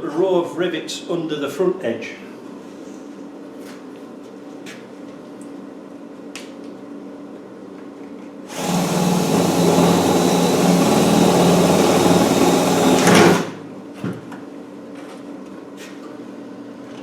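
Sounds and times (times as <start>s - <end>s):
electric drill running: 8.5s - 13.7s.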